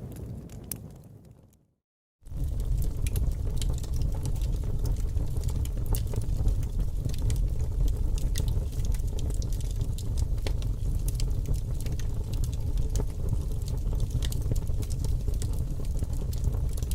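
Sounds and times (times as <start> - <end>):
fire crackling and popping: 0.0 - 16.9.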